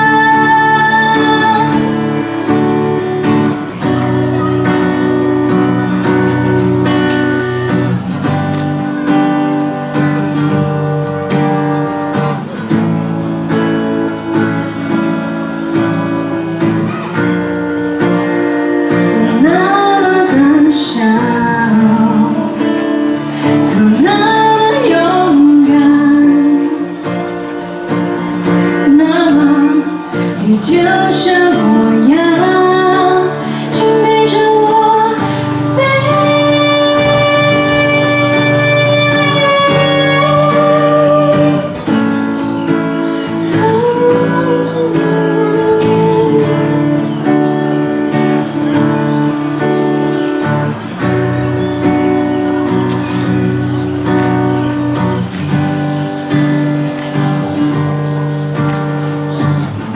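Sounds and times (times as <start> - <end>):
woman singing: 0.0 - 7.8, 18.8 - 27.4, 28.4 - 47.5
guitar strumming chords: 0.0 - 59.9.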